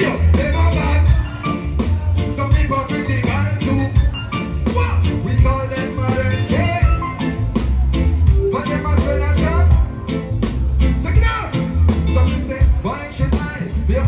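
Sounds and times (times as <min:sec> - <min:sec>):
person singing: 0:00.0 - 0:07.7
live reggae band: 0:00.0 - 0:14.0.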